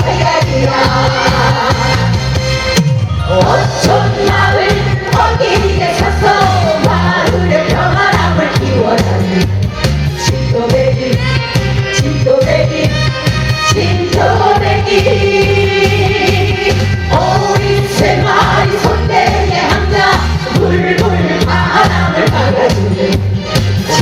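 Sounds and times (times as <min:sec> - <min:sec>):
several voices singing: 0:00.0 - 0:02.4, 0:03.2 - 0:09.4, 0:13.8 - 0:23.3
amplified backing music with bass beat: 0:00.0 - 0:24.0.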